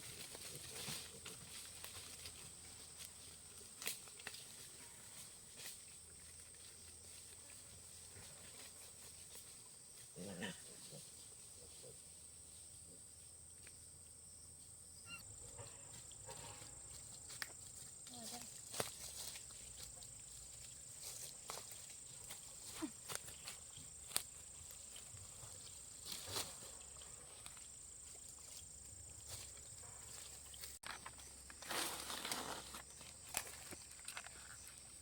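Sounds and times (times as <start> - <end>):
farm animal grunt: 10.2 - 12.1.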